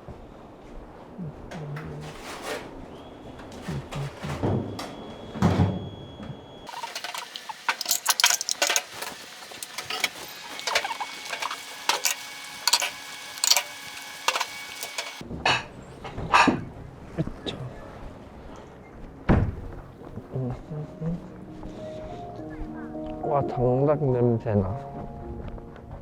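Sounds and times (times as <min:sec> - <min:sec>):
clicks and knocks of handled objects: 0:06.7 - 0:15.2.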